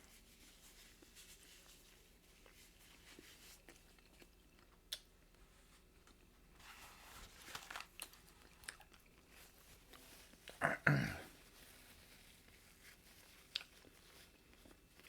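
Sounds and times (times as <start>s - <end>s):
person chewing food: 2.4s - 5.4s, 7.8s - 11.5s, 12.4s - 15.0s.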